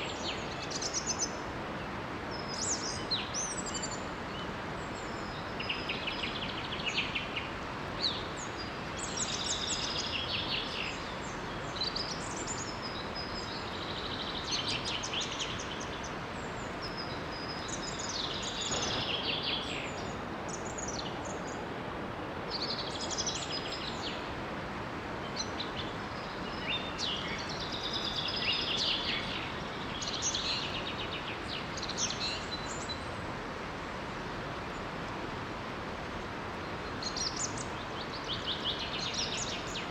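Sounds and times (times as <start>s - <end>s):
small waterfall rushing: 0.0s - 39.9s
songbirds trilling: 2.4s - 21.8s.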